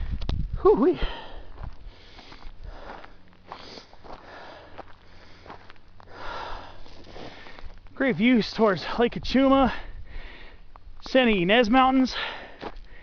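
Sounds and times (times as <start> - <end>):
person breathing hard: 0.9 - 7.8, 9.7 - 10.7, 12.1 - 13.0.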